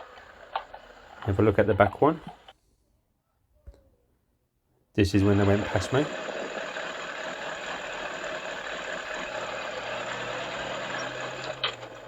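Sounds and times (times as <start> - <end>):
motorcycle engine running slowly: 5.2 - 12.0.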